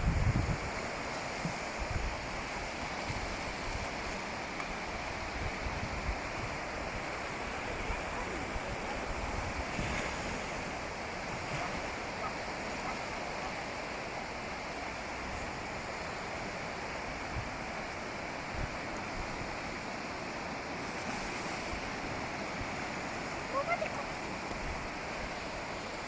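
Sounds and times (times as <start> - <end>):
wind buffeting microphone: 0.0 - 2.3
ocean waves washing onto beach: 0.0 - 26.0.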